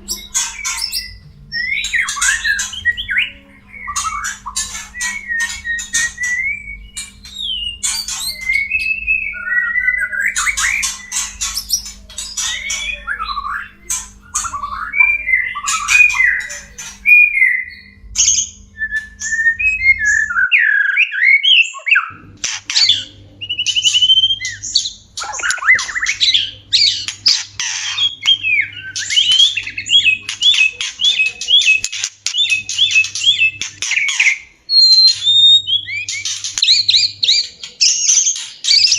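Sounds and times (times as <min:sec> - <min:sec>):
harsh rattling bird chatter: 0:00.0 - 0:20.2, 0:21.5 - 0:38.9
birds whistling: 0:00.0 - 0:38.9
low electrical hum: 0:00.0 - 0:38.9.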